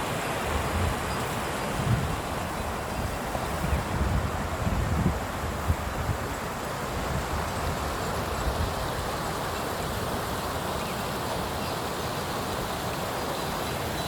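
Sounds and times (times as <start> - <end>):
mountain stream rushing: 0.0 - 14.0
wind buffeting microphone: 1.7 - 10.5.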